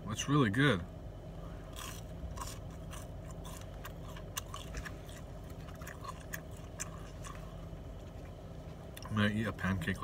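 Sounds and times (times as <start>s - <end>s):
low hum: 0.0s - 10.0s
person chewing with clicks: 1.7s - 9.1s.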